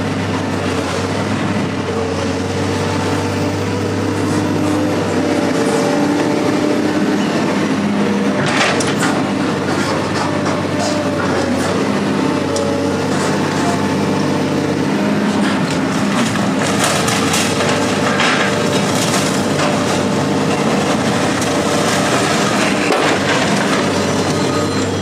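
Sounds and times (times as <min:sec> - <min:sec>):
engine running steadily: 0:00.0 - 0:25.0
metal clanking and scraping: 0:15.4 - 0:24.6.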